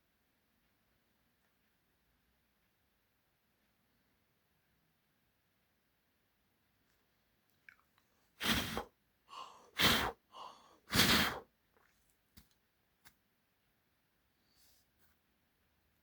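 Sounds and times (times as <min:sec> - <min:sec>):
breath puffs into microphone: 0:08.4 - 0:11.4
soft inhales: 0:08.4 - 0:11.4.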